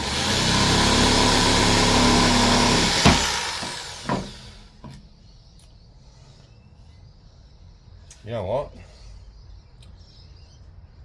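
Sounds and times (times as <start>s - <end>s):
tool winding down: 0.0s - 4.7s
power tool whining: 0.0s - 5.0s.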